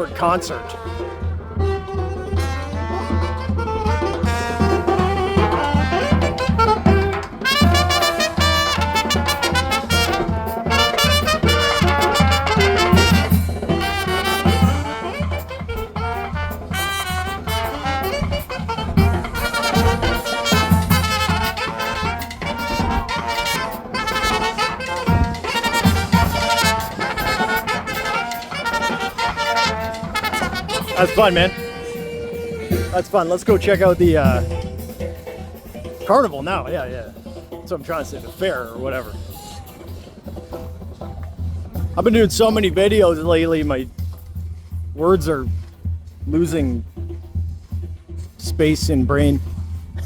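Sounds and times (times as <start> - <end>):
brass band playing: 0.0 - 44.1, 44.9 - 47.2.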